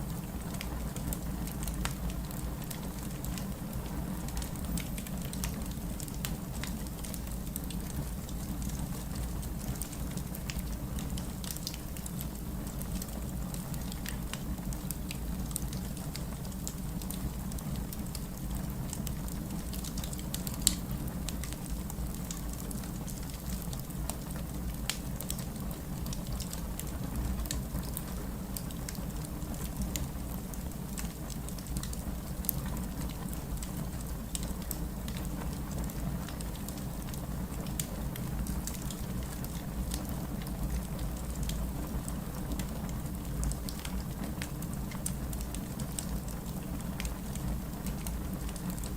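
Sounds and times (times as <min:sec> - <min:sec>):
steady rain falling: 0:00.0 - 0:48.9
wood fire crackling and popping: 0:00.0 - 0:48.9.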